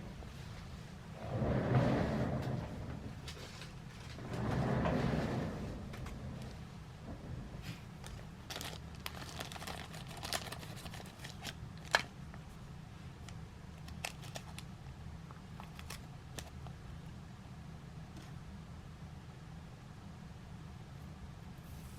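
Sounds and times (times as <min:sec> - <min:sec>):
paper rustling and crinkling: 0:07.6 - 0:12.1, 0:13.8 - 0:14.7, 0:15.6 - 0:16.6.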